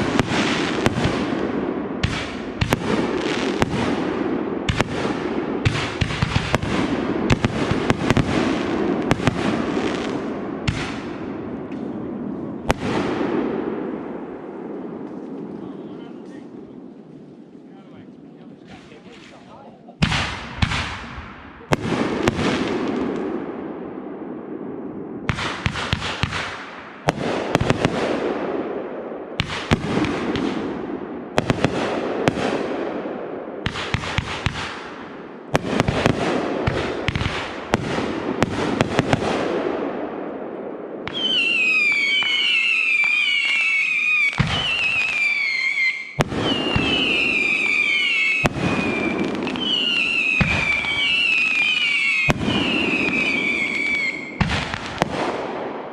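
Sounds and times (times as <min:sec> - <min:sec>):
fireworks bursting: 0:00.0 - 0:16.9, 0:18.6 - 0:55.9.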